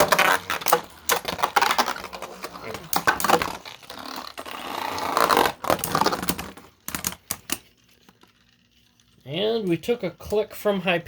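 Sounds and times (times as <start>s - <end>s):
plastic tops clacking: 0.0s - 9.0s.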